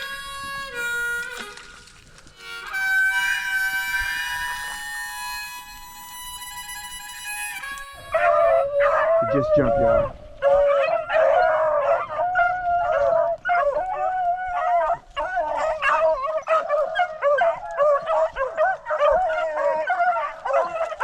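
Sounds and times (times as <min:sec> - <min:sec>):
pack of dogs baying: 0:08.0 - 0:21.0.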